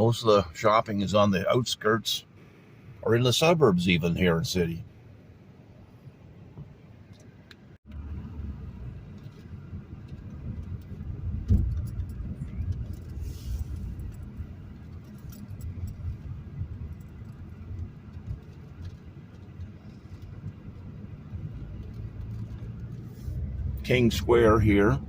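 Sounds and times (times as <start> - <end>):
car engine and road rumble: 0.0 - 25.0
light clicks and rattles: 6.6 - 24.2.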